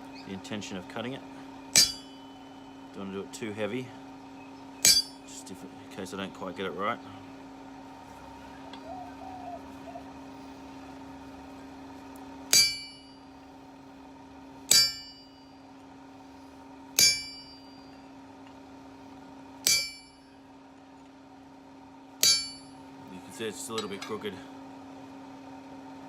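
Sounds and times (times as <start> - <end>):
steady hum: 0.0 - 26.0
hammer striking chisel on metal: 1.7 - 2.4, 4.8 - 5.3, 12.5 - 13.2, 14.7 - 15.4, 17.0 - 18.0, 19.6 - 20.3, 22.2 - 22.8.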